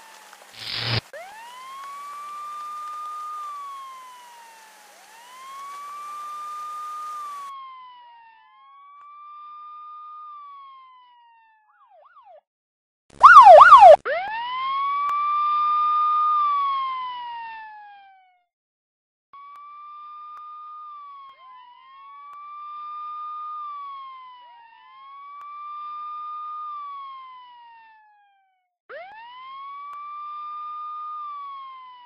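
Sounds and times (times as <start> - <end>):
police siren wailing: 0.0 - 12.4, 13.2 - 18.3, 19.9 - 32.0
siren fast yelping: 13.2 - 14.3.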